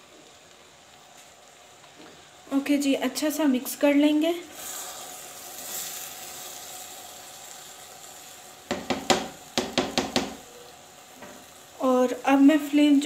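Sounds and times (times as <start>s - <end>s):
spinach sizzling in oil: 0.0s - 13.0s
spatula knocking clay pot: 8.7s - 10.4s.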